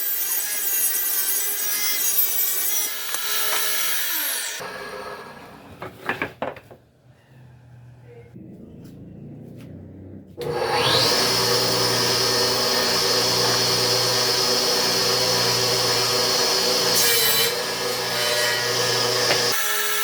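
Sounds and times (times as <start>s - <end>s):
power tool motor whine: 10.4s - 19.6s.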